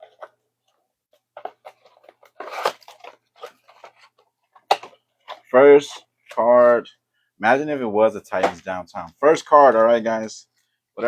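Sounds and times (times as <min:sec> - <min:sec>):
card packaging crinkling and tearing: 0:01.4 - 0:06.0.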